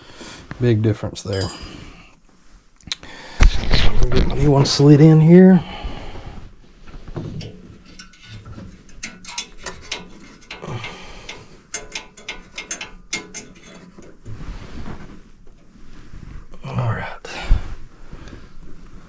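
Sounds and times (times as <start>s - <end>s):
metallic clicks of hand tools: 7.4s - 14.2s.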